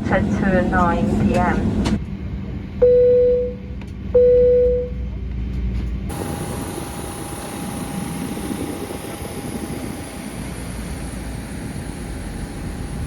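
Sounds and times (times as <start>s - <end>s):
aircraft cabin rumble and hiss: 0.0s - 13.0s.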